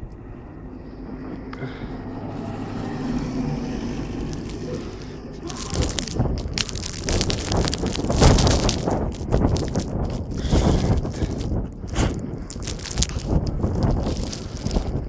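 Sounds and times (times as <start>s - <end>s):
vehicle passing on snowy street: 0.2s - 15.0s
sharp crackles and knocks: 4.2s - 4.7s, 5.4s - 15.0s.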